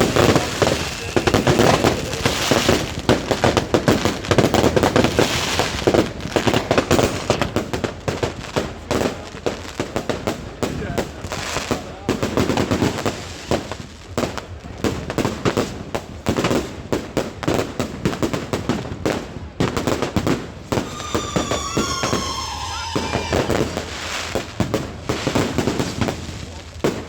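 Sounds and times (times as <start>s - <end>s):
fireworks bangs and crackles: 0.0s - 27.0s
falling firework whistle: 20.6s - 25.0s.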